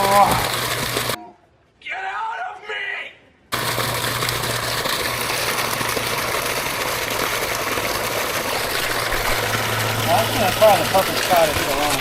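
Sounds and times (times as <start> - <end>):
water pump running: 0.0 - 1.2, 3.5 - 12.0
rushing water hiss: 3.6 - 12.0.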